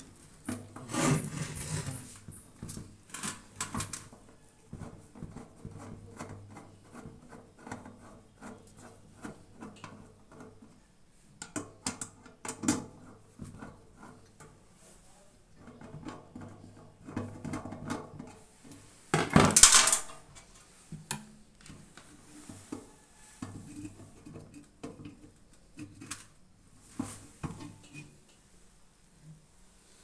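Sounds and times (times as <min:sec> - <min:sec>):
metal parts clicking and knocking: 0:19.3 - 0:20.6.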